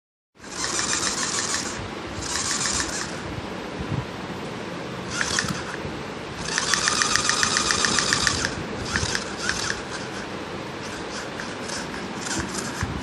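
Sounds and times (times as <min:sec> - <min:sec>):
rapid mechanical clicking: 0:00.4 - 0:03.2, 0:05.1 - 0:05.8, 0:06.4 - 0:13.0.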